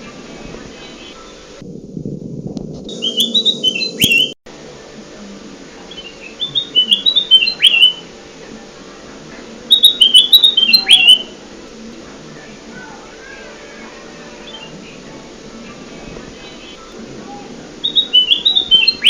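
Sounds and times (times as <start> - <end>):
bulbul singing falling notes: 9.7 - 11.4, 17.7 - 19.0.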